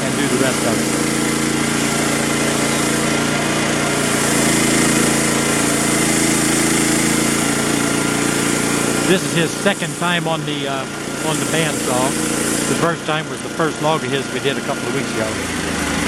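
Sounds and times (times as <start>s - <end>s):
band blade cutting log: 0.0s - 10.4s, 11.1s - 13.0s
bandsaw mill engine running: 0.0s - 16.0s.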